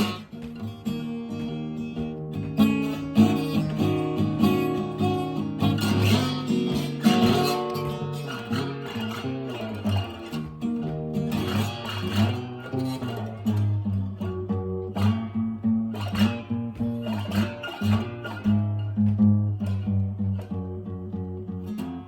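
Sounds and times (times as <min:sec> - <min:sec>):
acoustic guitar blues: 0:00.0 - 0:22.0.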